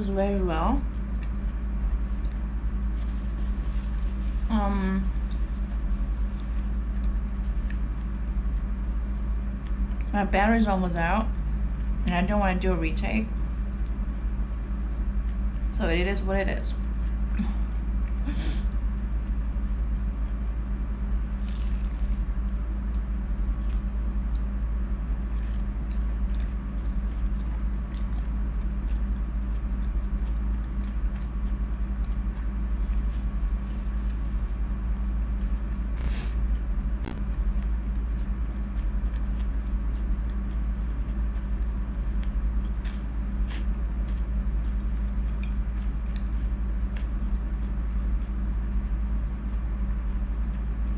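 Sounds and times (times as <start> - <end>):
low background hum: 0.0 - 50.9
person chewing: 21.4 - 48.4.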